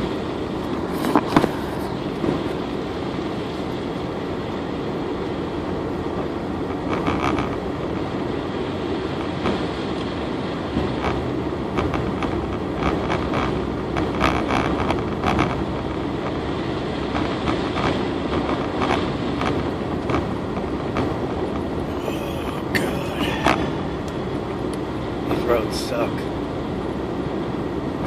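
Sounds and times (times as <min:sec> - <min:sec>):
tyres and engine rumbling: 0:00.0 - 0:28.0
knocks and clunks in car cabin: 0:17.1 - 0:26.2.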